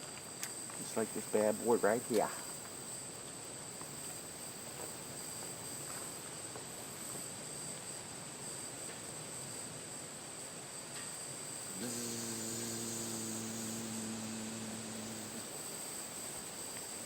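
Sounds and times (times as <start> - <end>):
insects trilling: 0.3 - 5.8, 11.1 - 17.0.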